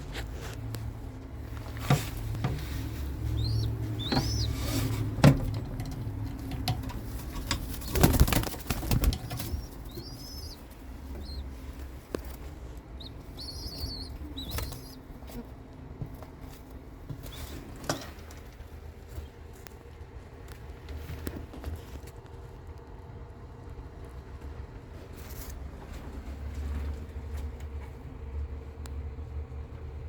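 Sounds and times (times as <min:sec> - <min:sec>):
low steady rumble: 0:00.0 - 0:30.0
pigeons chirping: 0:01.6 - 0:15.5
pigeon wings flapping: 0:05.4 - 0:10.6.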